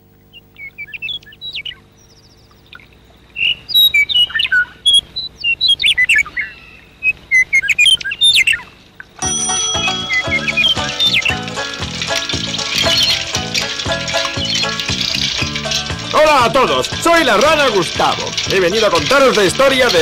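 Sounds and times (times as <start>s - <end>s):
low steady hum: 0.0s - 20.0s
songbirds chirping and whistling: 0.2s - 9.1s, 9.7s - 20.0s
music: 9.2s - 20.0s.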